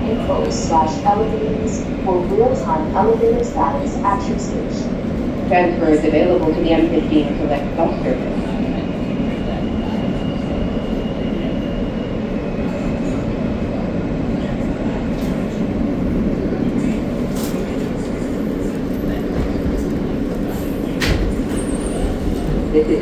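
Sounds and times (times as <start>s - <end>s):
subway car rumble and wheel noise: 0.0s - 23.0s.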